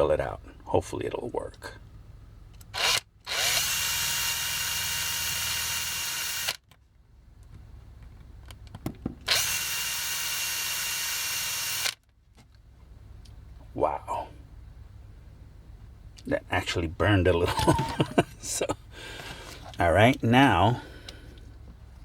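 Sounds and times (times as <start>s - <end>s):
cordless drill drilling plastic: 2.7s - 6.6s, 9.3s - 12.0s.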